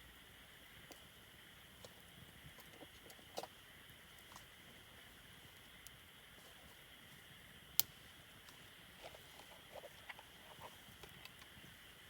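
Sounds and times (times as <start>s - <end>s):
steady low hiss: 0.0s - 12.0s
campfire crackling: 0.1s - 12.0s
burning wood popping: 5.5s - 11.8s.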